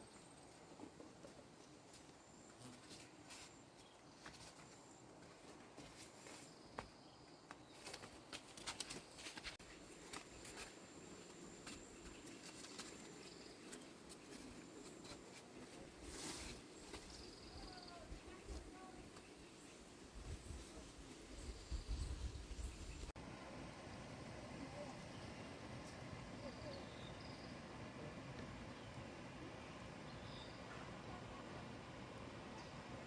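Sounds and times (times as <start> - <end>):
small clicks and rustles: 7.8 - 10.3.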